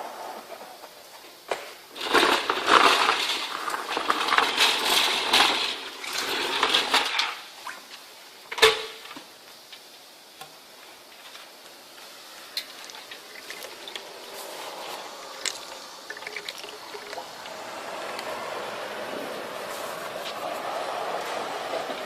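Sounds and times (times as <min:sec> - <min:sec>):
vacuum cleaner rushing: 0:02.0 - 0:07.4, 0:12.8 - 0:22.0.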